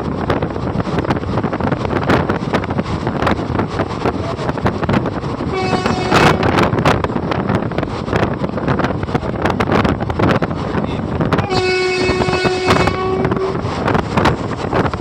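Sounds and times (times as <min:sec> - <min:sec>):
train rumbling with rapid knocks: 0:00.0 - 0:15.0
train horn blast: 0:05.5 - 0:06.7, 0:11.4 - 0:13.8.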